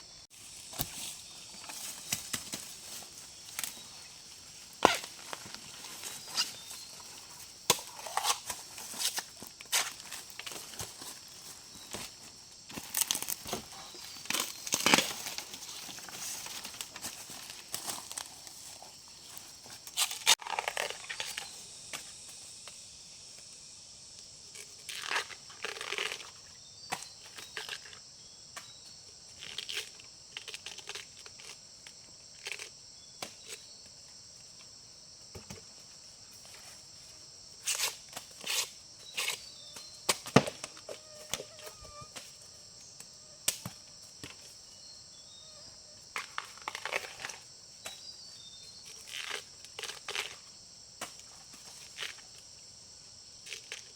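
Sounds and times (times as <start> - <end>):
insects trilling: 0.0 - 53.9
leaves and stems crunching underfoot: 0.3 - 21.9.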